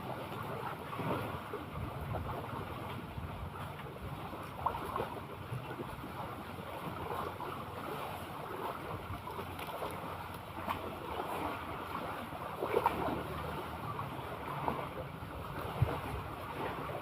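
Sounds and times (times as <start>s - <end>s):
sea waves washing: 0.0s - 17.0s
small water splashes: 0.0s - 17.0s
wind buffeting microphone: 0.9s - 6.2s, 14.2s - 17.0s.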